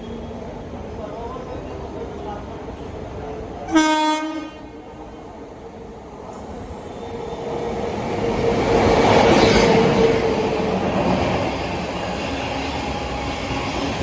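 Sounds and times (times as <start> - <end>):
train passing on rails: 0.0 - 14.0
train horn blast: 3.7 - 4.8.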